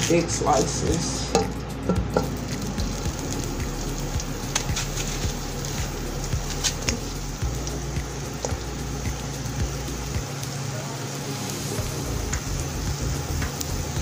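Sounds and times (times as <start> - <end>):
onion sizzling in hot oil: 0.0 - 14.0
low hum: 0.8 - 10.4.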